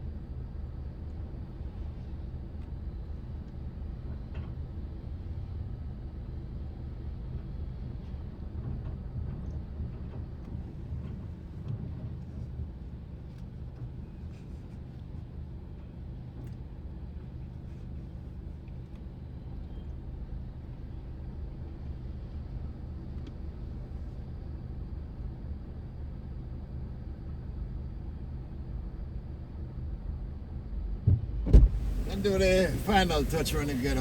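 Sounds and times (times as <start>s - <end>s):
car engine running: 31.6s - 34.0s.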